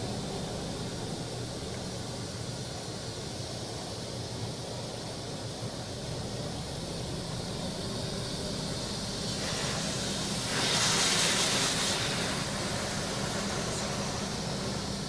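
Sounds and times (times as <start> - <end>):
car wash machine hum: 0.0 - 2.2, 6.1 - 15.0
water spray hissing on car: 8.8 - 15.0.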